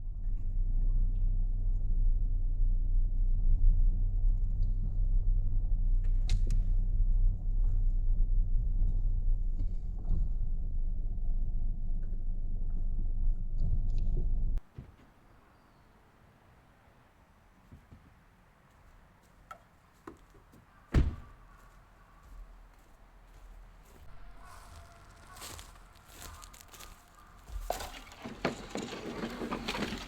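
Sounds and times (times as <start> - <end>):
vehicle engine rumbling: 0.0 - 14.7, 23.8 - 30.0.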